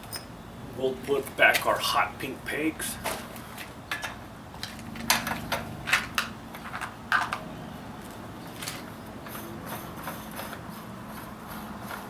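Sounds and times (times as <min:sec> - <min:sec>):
bicycle parts clicking: 0:03.0 - 0:12.0.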